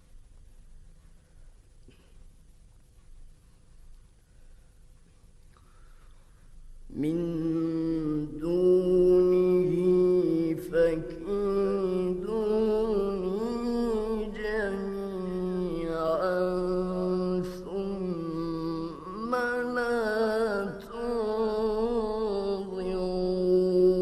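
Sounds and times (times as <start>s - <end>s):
man chanting melodic recitation: 6.9s - 24.0s.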